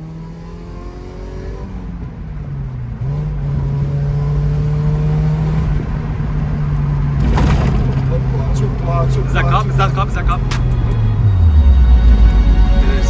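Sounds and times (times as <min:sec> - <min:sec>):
car engine exhaust note: 0:08.3 - 0:13.0.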